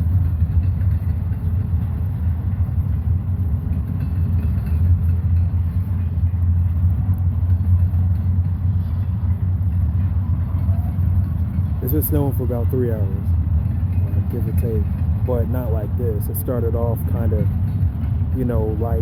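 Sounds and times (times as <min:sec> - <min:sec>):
freight train rolling past: 0:00.0 - 0:19.0.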